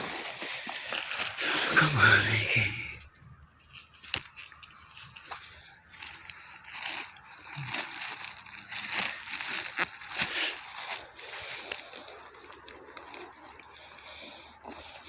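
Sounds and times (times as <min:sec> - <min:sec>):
rustling and crackling vegetation: 0:00.0 - 0:15.0.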